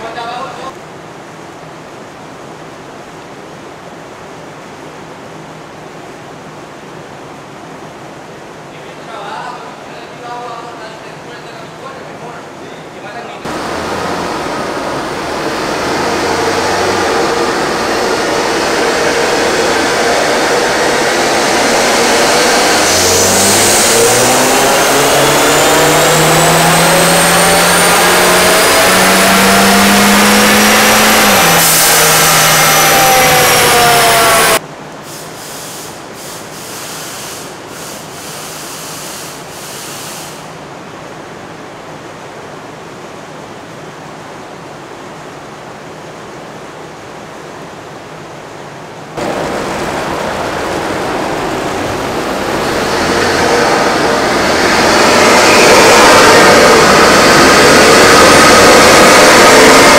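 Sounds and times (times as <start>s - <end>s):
car engine revving at full throttle: 13.5s - 34.6s, 49.2s - 59.9s
steady hiss: 35.0s - 40.6s.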